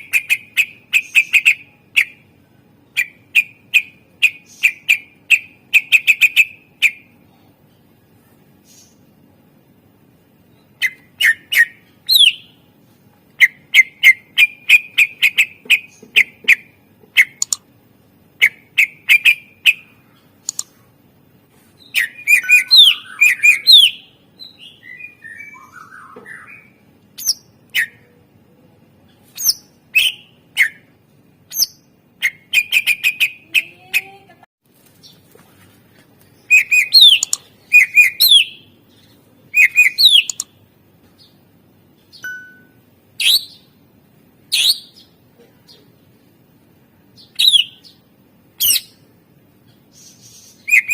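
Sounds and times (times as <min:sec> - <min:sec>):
bird singing high chirps: 0:00.0 - 0:02.2, 0:10.5 - 0:12.6, 0:21.8 - 0:28.1, 0:36.4 - 0:40.6, 0:42.1 - 0:43.8, 0:47.2 - 0:49.0, 0:49.9 - 0:50.9.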